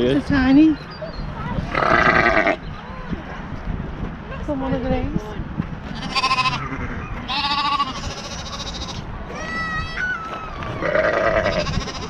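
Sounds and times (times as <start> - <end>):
livestock bleating: 1.7 - 2.6, 5.9 - 9.6, 10.7 - 12.0.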